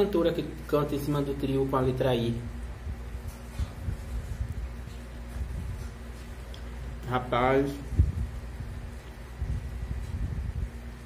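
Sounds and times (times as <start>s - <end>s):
man chewing food: 3.2s - 7.0s.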